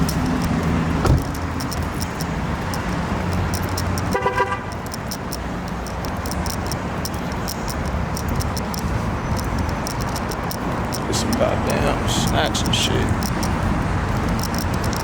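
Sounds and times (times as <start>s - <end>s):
thump: 1.0s - 1.3s
car horn toot: 4.1s - 4.7s.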